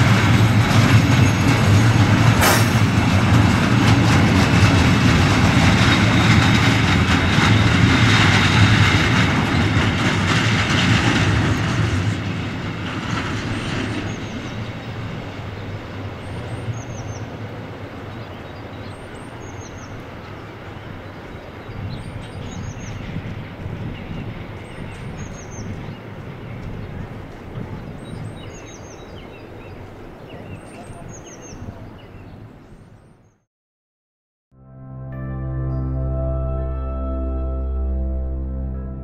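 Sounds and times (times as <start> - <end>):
train wheels rolling on rails: 0.0 - 31.7
bird chirping: 27.8 - 33.4.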